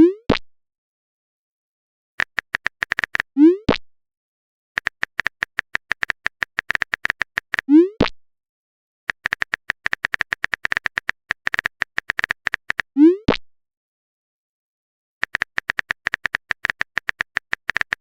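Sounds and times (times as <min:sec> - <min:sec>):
phone keyboard typing clicks: 0:02.2 - 0:03.3, 0:04.8 - 0:07.6, 0:09.1 - 0:12.8, 0:15.2 - 0:18.0.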